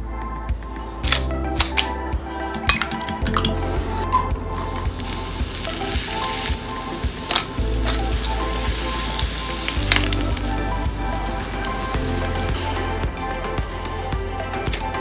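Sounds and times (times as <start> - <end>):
food sizzling in a pan: 4.6 - 12.7.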